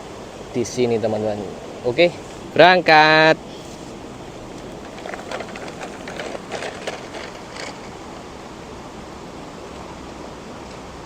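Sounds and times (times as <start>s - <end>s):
steady rushing background noise: 0.0s - 11.0s
plastic toy truck clattering: 4.8s - 7.9s.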